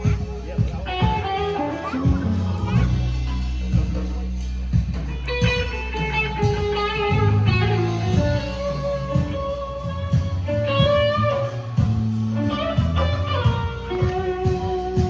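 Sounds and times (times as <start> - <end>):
bass: 0.0 - 15.0
blues electric guitar bending notes: 0.0 - 15.0
steady drum beat: 0.0 - 15.0.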